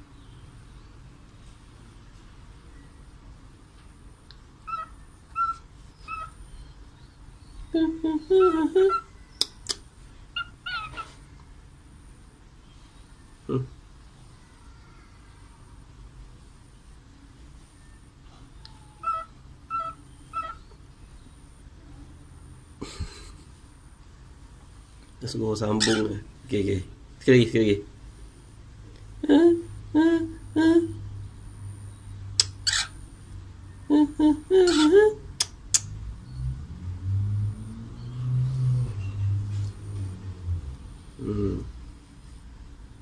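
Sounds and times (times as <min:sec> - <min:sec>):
parrot calls: 0:04.6 - 0:06.7, 0:07.8 - 0:11.2, 0:17.8 - 0:20.8, 0:25.8 - 0:26.2, 0:32.4 - 0:33.1, 0:33.8 - 0:35.9
person singing short syllables: 0:41.2 - 0:41.7.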